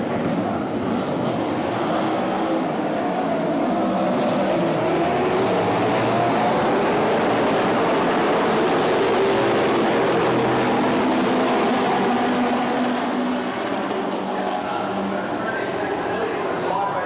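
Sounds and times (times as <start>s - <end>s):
race car engines at full throttle: 0.0s - 17.0s.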